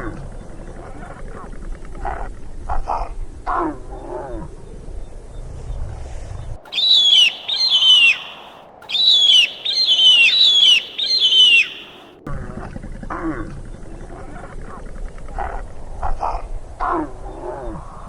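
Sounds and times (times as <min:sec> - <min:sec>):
bird of prey screeching: 0:06.7 - 0:12.1.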